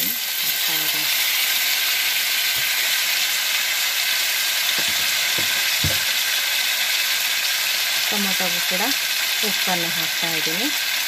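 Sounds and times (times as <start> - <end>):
tomatoes sizzling in hot oil: 0.0 - 11.0
wooden spatula thuds: 4.8 - 6.2.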